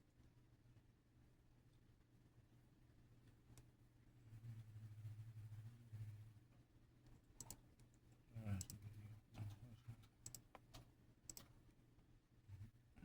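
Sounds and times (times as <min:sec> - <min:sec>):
light clicks and taps: 0:07.0 - 0:11.6.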